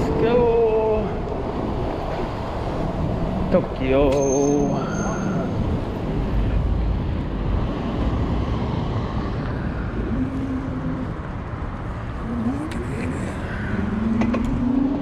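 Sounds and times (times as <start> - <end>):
cars passing: 0.0 - 15.0
road noise: 0.0 - 15.0
wind rumble on microphone: 0.0 - 15.0.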